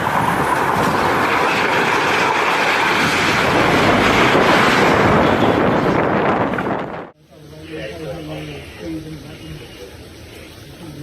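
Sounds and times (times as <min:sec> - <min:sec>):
strong storm wind: 0:00.0 - 0:07.2
wind buffeting microphone: 0:00.0 - 0:07.2.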